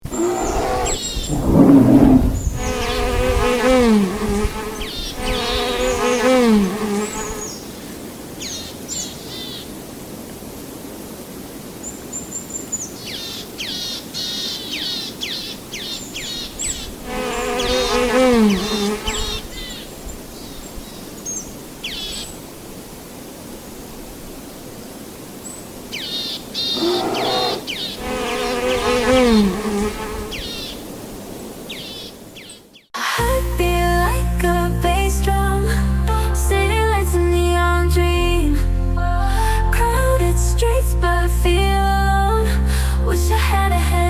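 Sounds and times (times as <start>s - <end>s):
birds chirping: 0.0s - 3.1s, 25.5s - 30.9s
bees buzzing: 0.0s - 7.4s, 17.1s - 19.4s, 26.6s - 30.6s
low rumbling noise: 0.1s - 2.9s.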